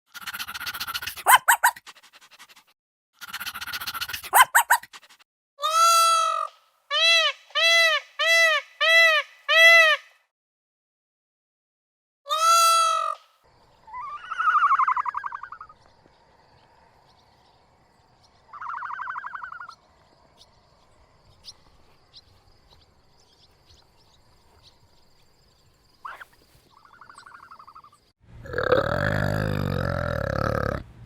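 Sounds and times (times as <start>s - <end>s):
faint bird chirps: 13.2s - 28.2s
pulsed trilling animal calls: 13.9s - 15.8s.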